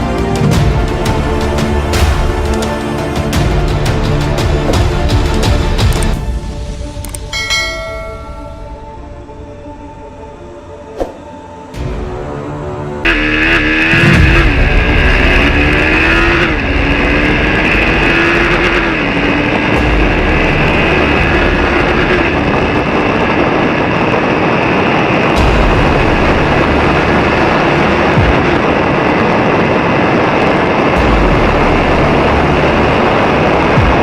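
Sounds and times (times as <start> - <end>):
loud rushing noise: 8.4 - 34.0
motorcycle engine running: 13.0 - 34.0.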